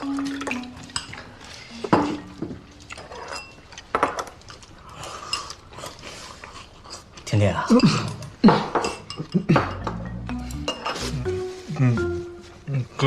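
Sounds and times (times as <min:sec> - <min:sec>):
tableware clattering: 0:00.5 - 0:04.4, 0:07.7 - 0:11.2.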